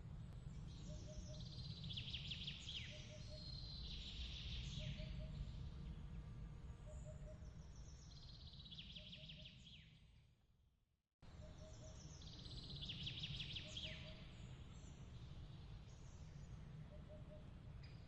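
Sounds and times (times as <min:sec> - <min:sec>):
low steady rumble: 0:00.0 - 0:08.8
bird-like chirps: 0:00.7 - 0:05.5, 0:11.4 - 0:15.0, 0:15.9 - 0:18.0.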